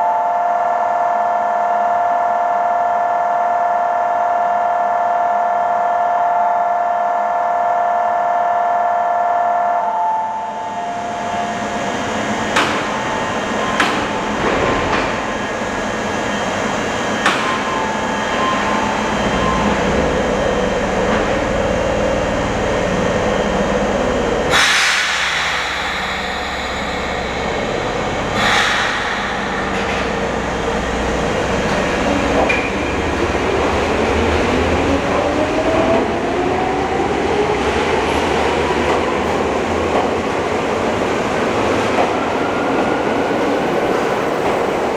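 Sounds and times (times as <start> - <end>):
train motor whine rising: 10.5 - 39.7
train running rumble: 10.8 - 44.9
air hiss bursts: 24.5 - 32.0.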